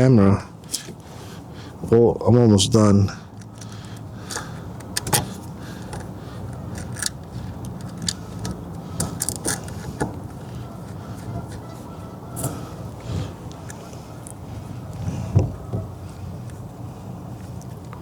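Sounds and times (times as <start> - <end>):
low steady hum: 0.0 - 18.0
hand tools clicking and clattering: 3.3 - 11.7.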